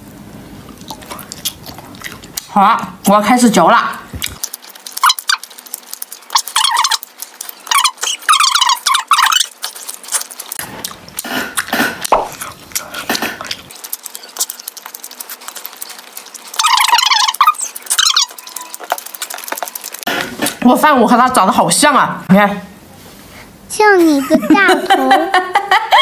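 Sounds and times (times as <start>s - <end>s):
high squeaky chewing chirps: 4.2s - 20.6s.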